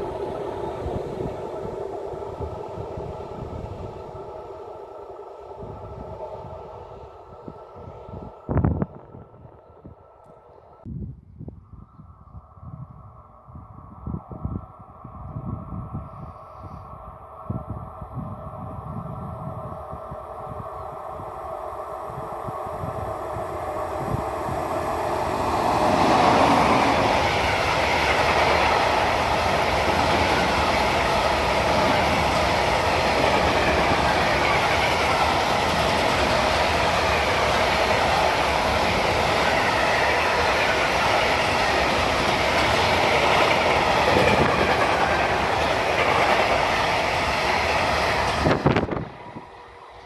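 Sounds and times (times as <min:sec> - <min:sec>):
train wheels rolling on rails: 0:00.0 - 0:10.9, 0:18.6 - 0:50.0.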